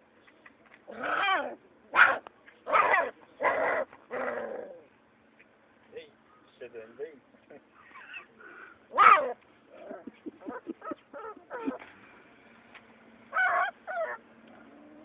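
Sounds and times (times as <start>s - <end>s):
animal cries: 0.9s - 4.9s, 7.8s - 11.8s, 13.3s - 15.0s.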